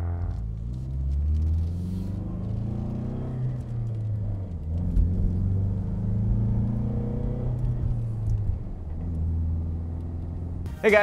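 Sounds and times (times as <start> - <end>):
car engine heard from cabin: 0.0 - 11.0.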